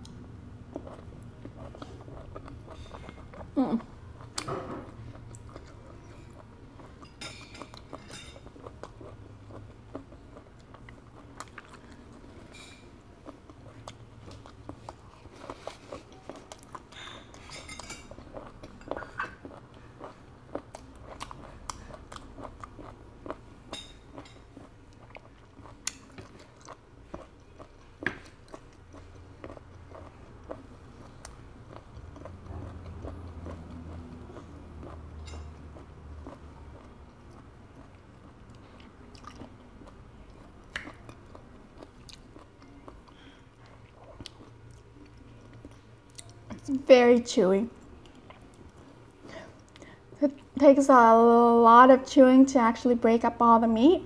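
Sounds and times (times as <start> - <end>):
chewing mouth clicks and smacks: 24.1 - 46.6.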